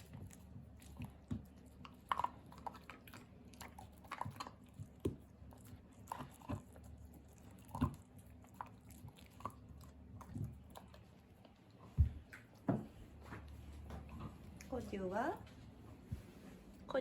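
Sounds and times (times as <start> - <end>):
dog crunching bones: 0.0 - 12.8.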